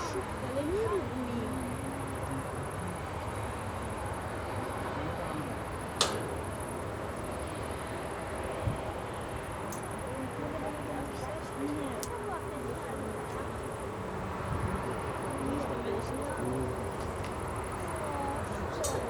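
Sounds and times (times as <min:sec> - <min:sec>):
insects chirring: 0:00.0 - 0:19.0
sharp click: 0:06.0 - 0:06.3.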